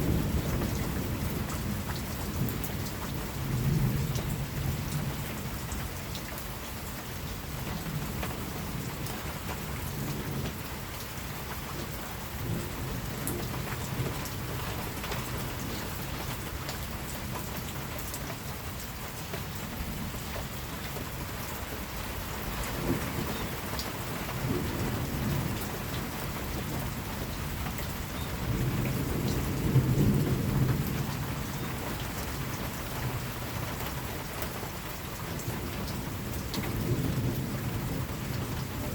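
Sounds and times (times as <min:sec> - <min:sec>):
steady rain falling: 0:00.0 - 0:38.9
distant thunder rumbles: 0:22.4 - 0:34.1, 0:35.4 - 0:38.9.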